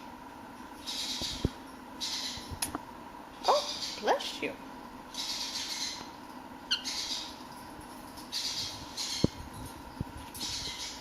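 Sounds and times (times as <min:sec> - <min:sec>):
parrot chirp: 0:00.8 - 0:02.5, 0:03.4 - 0:04.2, 0:05.1 - 0:07.5, 0:08.2 - 0:09.4, 0:10.4 - 0:11.0.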